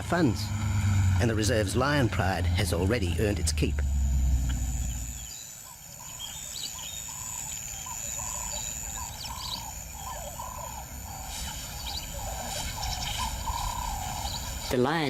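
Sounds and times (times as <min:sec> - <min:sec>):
faint high chirps: 0:04.4 - 0:14.7.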